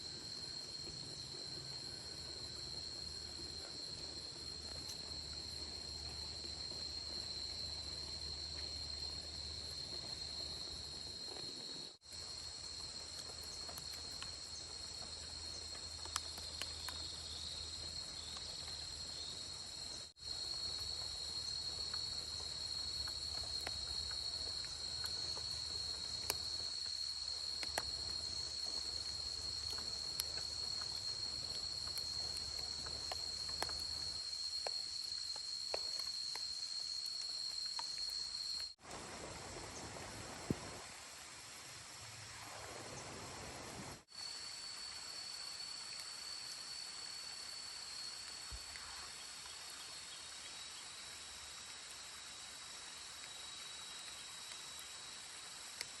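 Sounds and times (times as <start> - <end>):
crickets trilling: 0.0 - 56.0
faint ticks: 12.7 - 18.9, 20.7 - 38.8.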